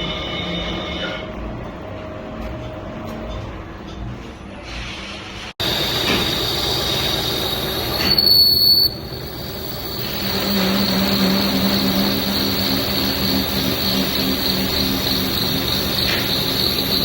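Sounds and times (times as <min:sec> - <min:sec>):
loud squeal: 0:05.6 - 0:17.0
low machine hum: 0:05.6 - 0:17.0
metal lathe cutting whine: 0:05.6 - 0:17.0.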